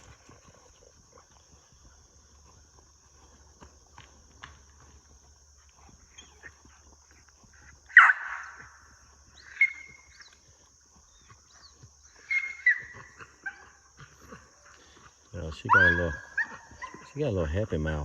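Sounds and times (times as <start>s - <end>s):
puppy yelp: 7.9s - 8.6s, 9.4s - 10.0s, 12.2s - 13.8s, 15.6s - 17.1s.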